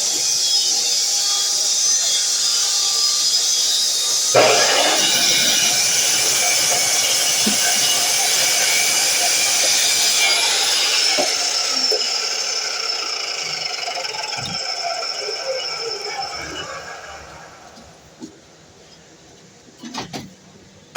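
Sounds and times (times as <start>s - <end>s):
miter saw whining: 0.0s - 18.4s
saw knock: 4.3s - 12.5s.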